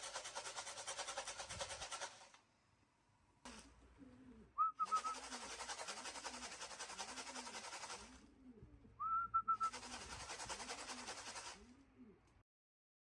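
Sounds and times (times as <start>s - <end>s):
pigeons cooing: 3.5s - 12.3s
short high whistle: 4.6s - 5.2s, 9.0s - 9.7s.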